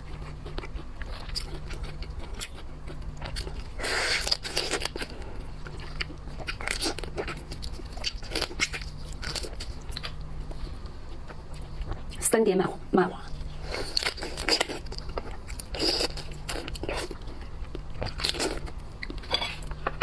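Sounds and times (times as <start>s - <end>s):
chewing: 0.0s - 12.2s, 13.3s - 20.0s
crunching seafood shells: 13.6s - 20.0s.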